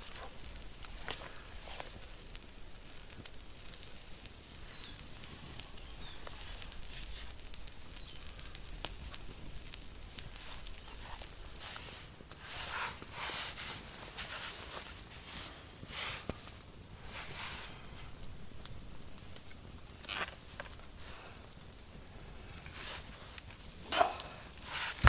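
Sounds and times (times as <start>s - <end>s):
campfire crackling: 0.0s - 25.0s
rustling: 0.0s - 25.0s.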